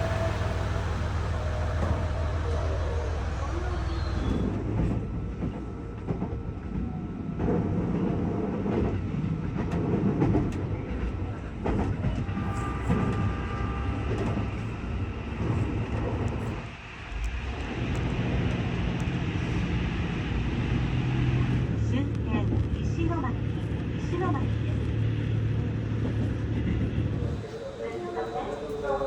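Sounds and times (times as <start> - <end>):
faint high wheel tone: 0.0 - 4.6
train rumbling on rails: 0.0 - 29.0.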